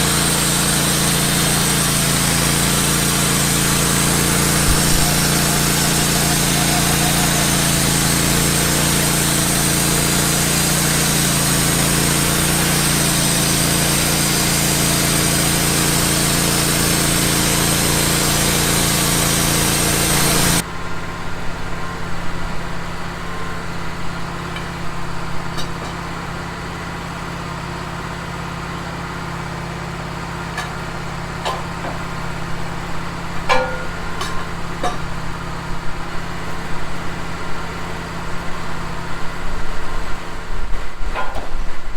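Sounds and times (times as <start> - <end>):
saw blade hissing through log: 0.0 - 20.6
sawmill engine running: 0.0 - 41.2.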